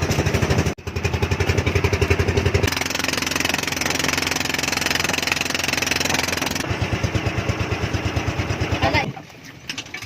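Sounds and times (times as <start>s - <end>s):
engine running: 0.0s - 9.2s.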